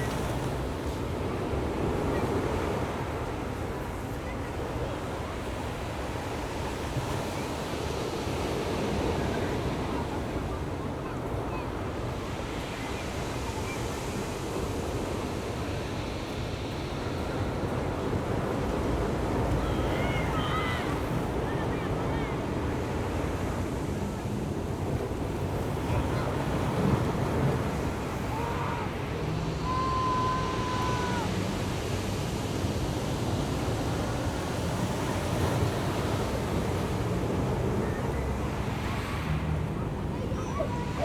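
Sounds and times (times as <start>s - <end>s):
faint indistinct voices: 0.0s - 41.0s
ocean surf breaking: 11.5s - 41.0s.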